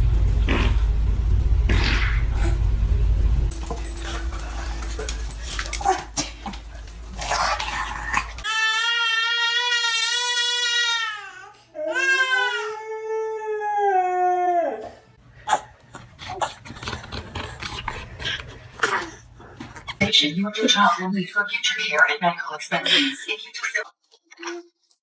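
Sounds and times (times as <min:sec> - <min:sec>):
dog howling: 0:13.3 - 0:15.0.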